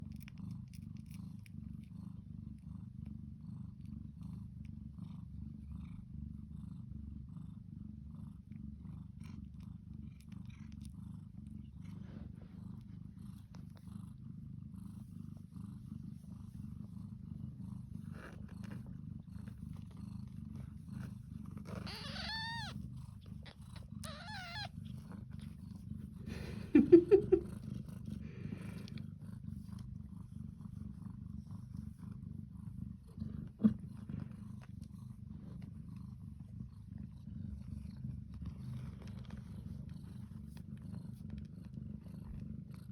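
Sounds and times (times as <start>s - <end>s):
cat purring: 0.0s - 42.9s
high thin kitten calls: 21.9s - 22.7s, 24.0s - 24.7s.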